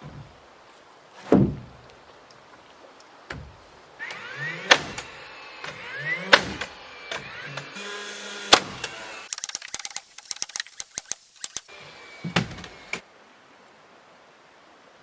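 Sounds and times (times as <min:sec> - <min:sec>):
heavy thump: 0:01.2 - 0:01.9
sharp clicks: 0:04.0 - 0:07.8, 0:08.5 - 0:11.7.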